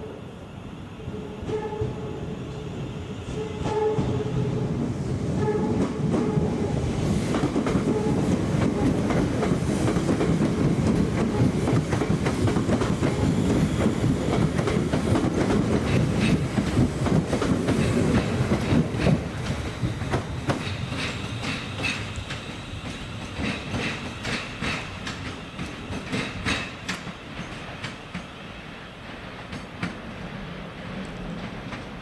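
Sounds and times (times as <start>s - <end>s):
train coaches rumbling: 0.0s - 32.0s
train horn: 1.1s - 2.4s, 3.3s - 4.8s, 5.4s - 6.9s, 7.7s - 9.1s.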